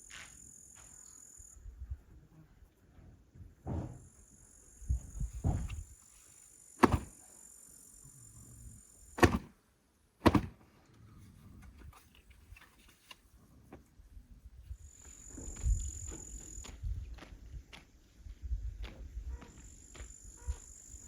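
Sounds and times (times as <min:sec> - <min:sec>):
insects chirring: 0:00.0 - 0:02.0, 0:03.9 - 0:09.2, 0:14.7 - 0:21.0
soft thuds: 0:03.4 - 0:04.0, 0:05.2 - 0:05.9
sharp knocks: 0:06.8 - 0:07.1, 0:10.2 - 0:10.5.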